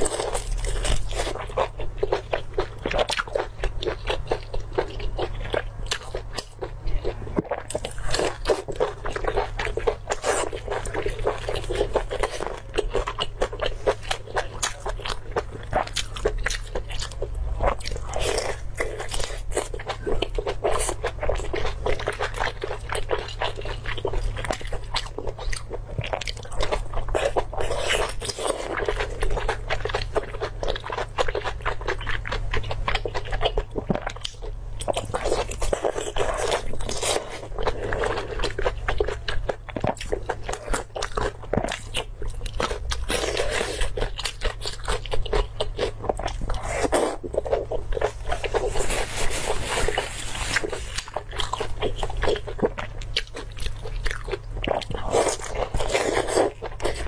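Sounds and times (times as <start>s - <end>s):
chewing meat: 0.0s - 57.0s.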